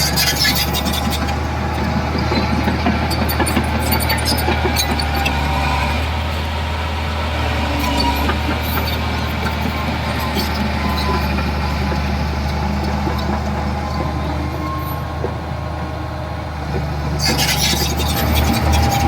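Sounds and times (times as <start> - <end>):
diesel engine droning: 0.0 - 19.0
harsh machine noise: 16.7 - 19.0.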